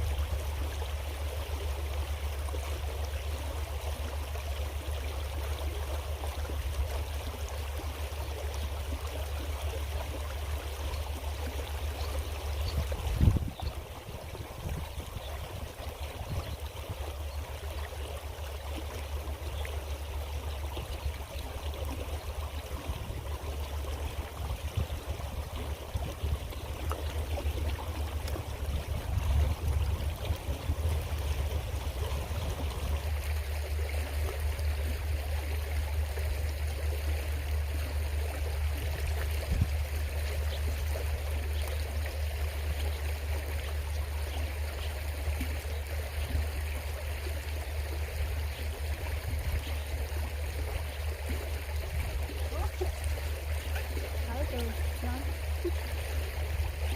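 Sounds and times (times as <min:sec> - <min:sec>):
creek flowing over rocks: 0:00.0 - 0:56.9
low rumble: 0:22.7 - 0:35.3.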